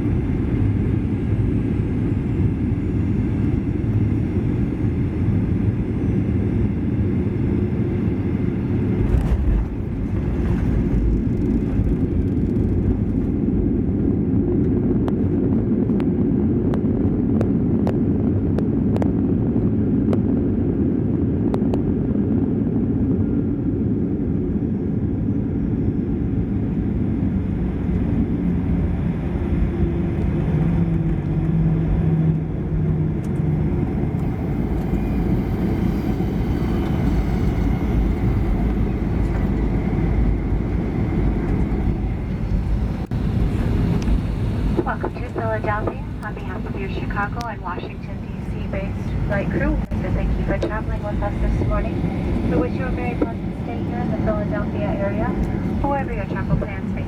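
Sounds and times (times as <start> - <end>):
aircraft cabin rumble: 0.0 - 57.0.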